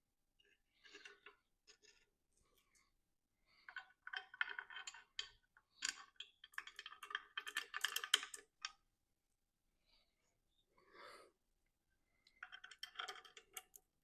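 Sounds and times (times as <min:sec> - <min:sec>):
rapid small clicks and rattling: 0:03.5 - 0:08.8, 0:12.2 - 0:14.0.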